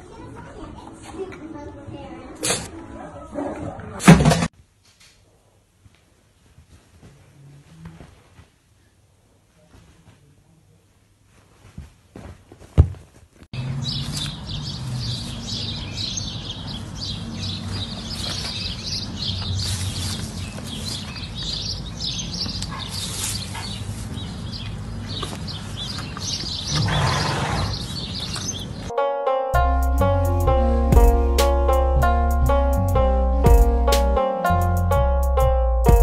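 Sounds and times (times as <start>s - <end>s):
small birds chirping: 13.6s - 28.9s.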